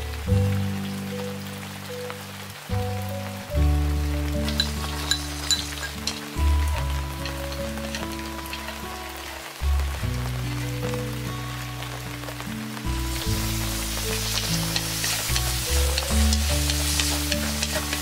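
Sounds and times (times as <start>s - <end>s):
slow low background music: 0.0s - 18.0s
food sizzling in hot oil: 2.7s - 18.0s
oil spattering crackles: 3.7s - 11.2s, 11.9s - 18.0s.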